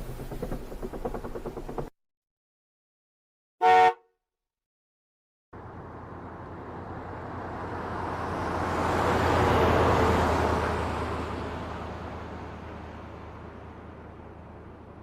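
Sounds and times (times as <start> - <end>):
motor vehicle passing by: 5.6 - 15.0.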